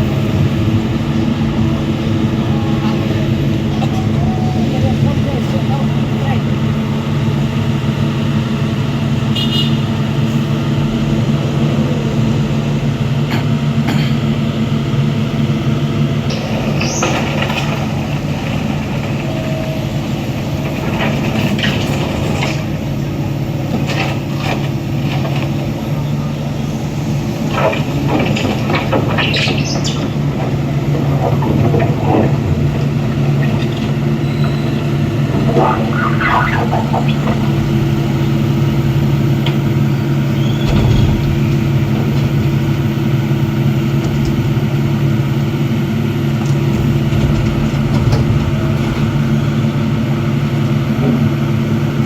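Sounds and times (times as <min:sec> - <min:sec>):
diesel engine droning: 0:00.0 - 0:52.0.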